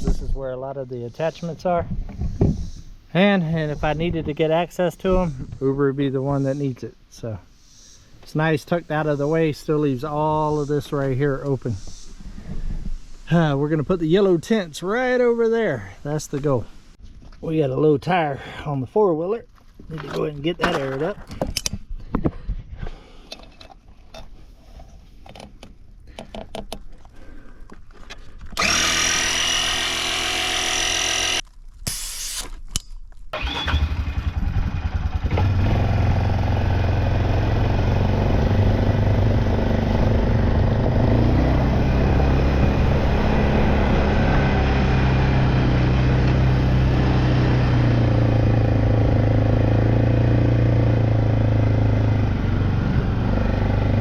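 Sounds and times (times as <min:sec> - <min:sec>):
engine starter cranking: 0:28.6 - 0:31.4, 0:33.4 - 0:35.6.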